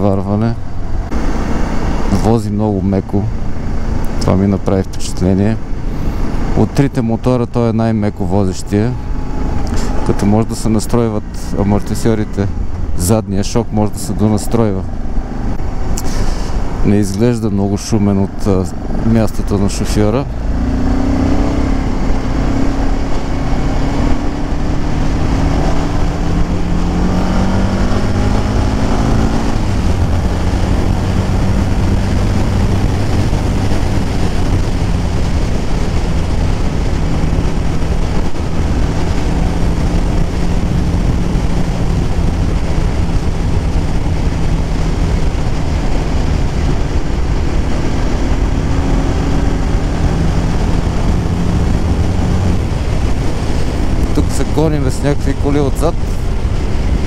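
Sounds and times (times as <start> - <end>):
motorcycle engine running: 18.3 - 57.0.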